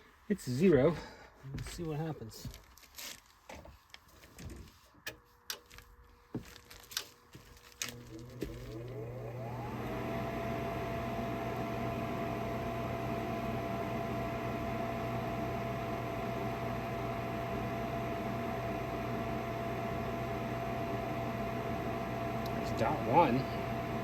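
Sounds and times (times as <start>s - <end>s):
furnace motor whining and humming: 7.8s - 24.0s.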